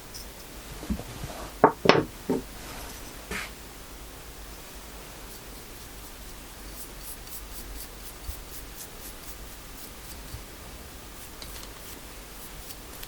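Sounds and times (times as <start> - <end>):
steady low hum: 0.0 - 13.0
paintbrush swishing on wood: 5.3 - 10.5, 11.1 - 13.0.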